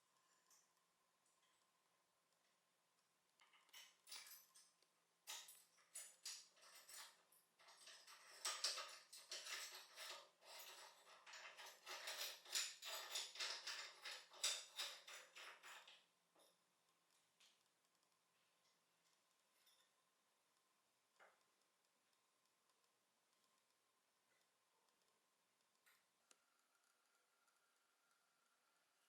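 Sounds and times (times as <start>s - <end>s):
small hard parts clicking and jingling: 3.4s - 16.1s.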